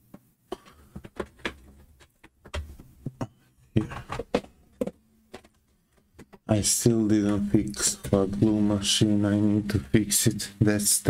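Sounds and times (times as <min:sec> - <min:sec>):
objects clattering on workbench: 0:00.5 - 0:06.4.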